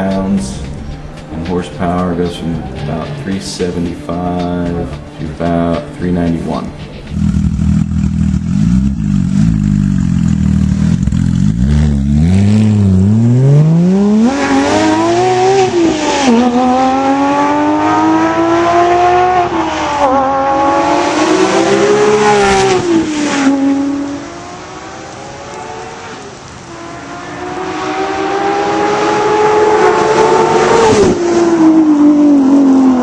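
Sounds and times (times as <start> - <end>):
sports car engine revving: 7.0 - 33.0.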